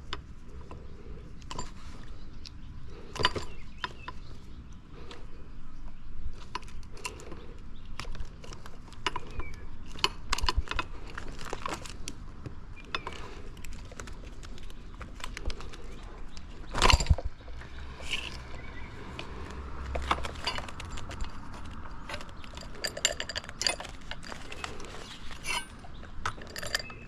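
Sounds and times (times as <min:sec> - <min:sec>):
metal tools clicking and clinking: 0:16.7 - 0:18.6, 0:19.9 - 0:27.0
metal clatter: 0:19.9 - 0:27.0.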